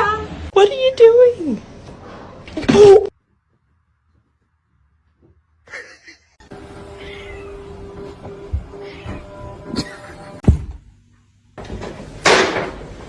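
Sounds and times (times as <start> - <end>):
cat meowing: 7.0 - 7.8, 8.7 - 9.5
thump: 10.4 - 10.9.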